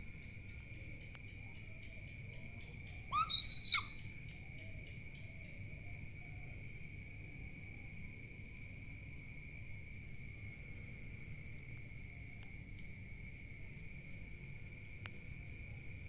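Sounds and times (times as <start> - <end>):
insects droning: 0.0 - 16.0
owl call: 3.0 - 4.1.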